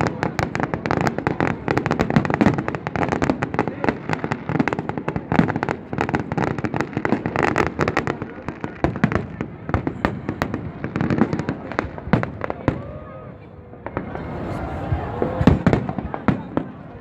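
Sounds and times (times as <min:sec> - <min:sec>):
fireworks crackling and popping: 0:00.0 - 0:13.0, 0:13.8 - 0:17.0
deep firework booms: 0:13.8 - 0:16.8.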